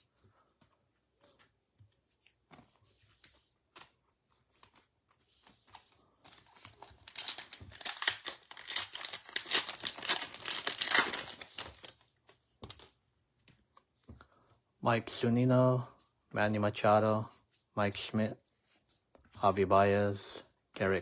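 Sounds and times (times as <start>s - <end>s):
foil wrapper tearing and crinkling: 6.6s - 12.0s.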